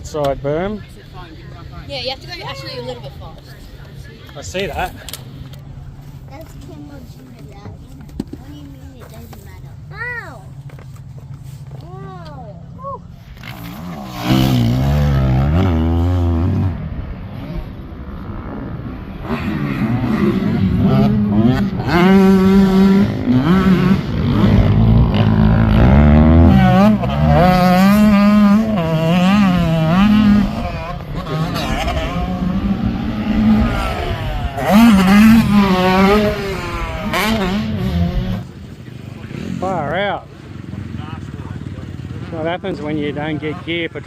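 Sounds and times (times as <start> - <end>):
dirt bike engine revving: 13.2 - 44.0.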